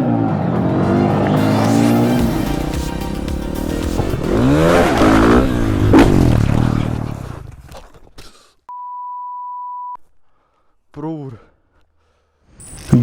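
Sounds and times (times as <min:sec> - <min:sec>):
motorcycle engine revving: 0:00.0 - 0:07.8
censor bleep: 0:08.7 - 0:10.0.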